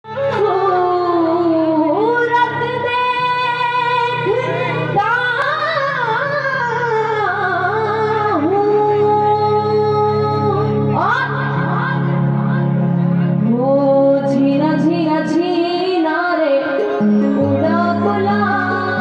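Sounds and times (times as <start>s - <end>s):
person singing long sliding notes: 13.6s - 19.0s.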